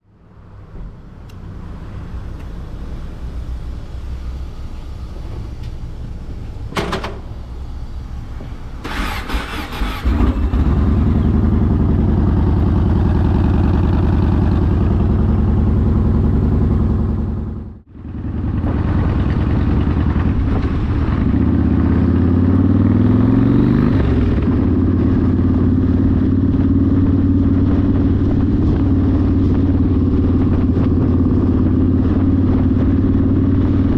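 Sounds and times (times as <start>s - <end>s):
motorcycle engine revving: 8.8s - 33.9s.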